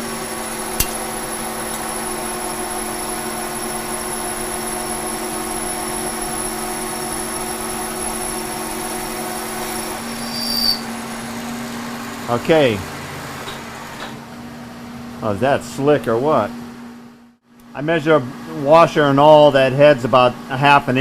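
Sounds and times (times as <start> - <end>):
milling machine gear whine: 0.0 - 14.2
brief high squeal: 10.0 - 10.9.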